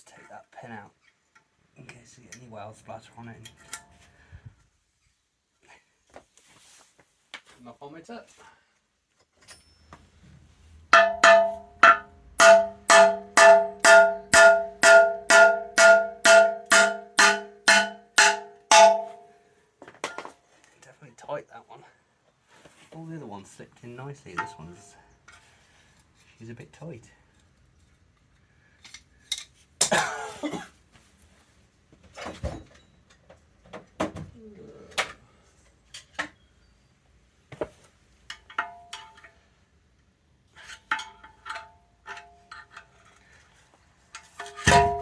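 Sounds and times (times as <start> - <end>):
light metal clinks: 9.4 - 9.9
metal knock: 10.9 - 19.2, 44.5 - 45.0
hammer striking steel pin: 10.9 - 19.3, 44.4 - 45.0.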